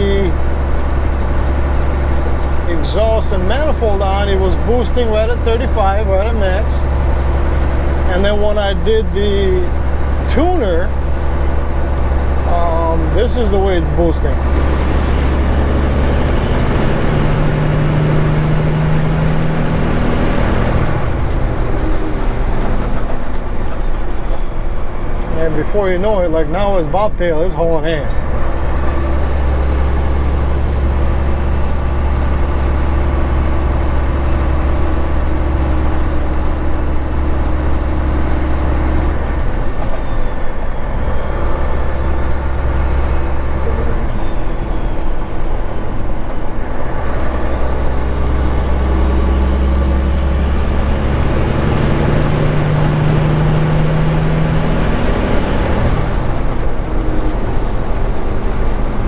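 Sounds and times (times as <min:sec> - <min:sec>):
diesel engine exhaust: 0:00.0 - 0:59.0.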